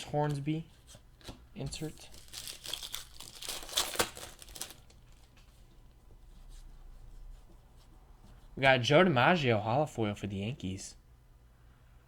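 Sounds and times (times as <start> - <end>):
wrapper crinkling and rustling: 1.2 - 5.6.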